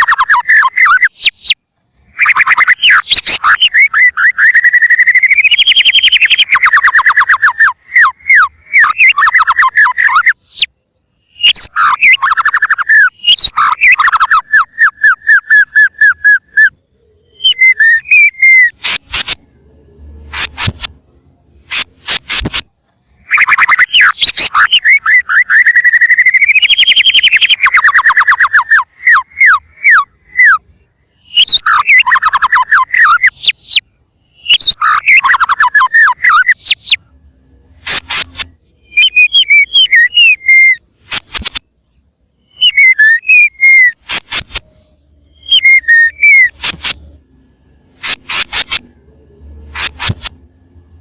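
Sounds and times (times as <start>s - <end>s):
bird singing whistled notes: 0.0s - 51.0s
sharp clicks: 18.7s - 19.5s, 20.2s - 21.0s, 21.6s - 25.0s, 37.8s - 40.0s, 41.0s - 41.7s, 44.0s - 44.8s, 46.3s - 47.2s, 47.9s - 49.0s, 49.6s - 50.5s.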